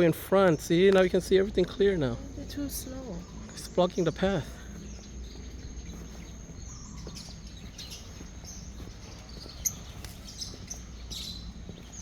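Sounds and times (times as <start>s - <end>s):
steady low rumble: 0.0s - 12.0s
faint bird chirps: 2.1s - 12.0s.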